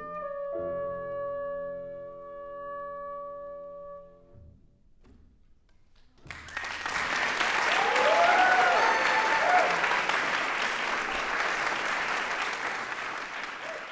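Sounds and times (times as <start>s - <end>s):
audience applause: 6.3s - 13.9s
people cheering: 6.3s - 13.9s.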